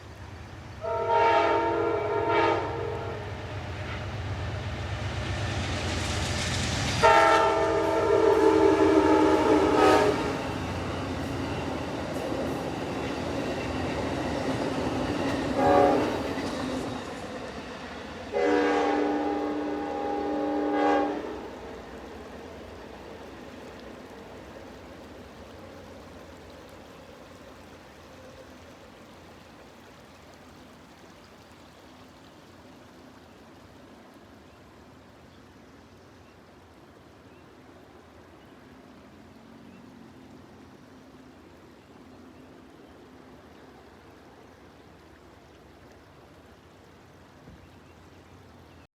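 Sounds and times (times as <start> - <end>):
passenger train rumble: 0.0 - 35.2.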